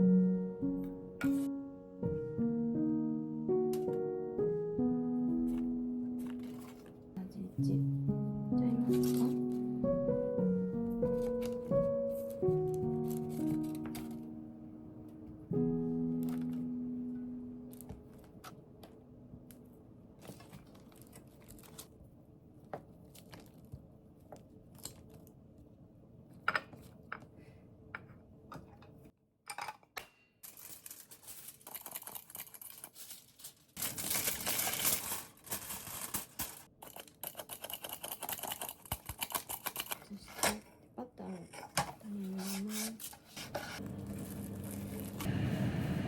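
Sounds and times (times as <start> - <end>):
rustling crackling noise: 10.8 - 14.3, 20.2 - 25.4, 30.7 - 36.8, 42.5 - 45.3.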